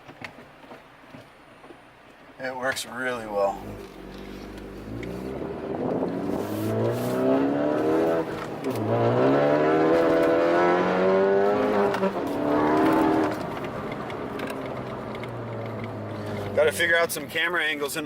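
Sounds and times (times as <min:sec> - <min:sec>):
car engine revving: 0:03.5 - 0:17.3.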